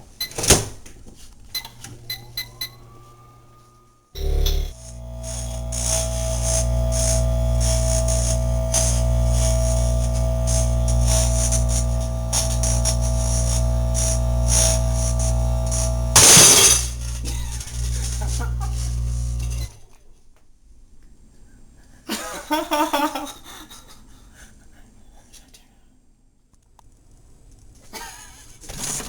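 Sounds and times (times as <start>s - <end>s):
microwave oven electrical hum: 1.5s - 19.8s
plasma crackling: 4.2s - 19.7s.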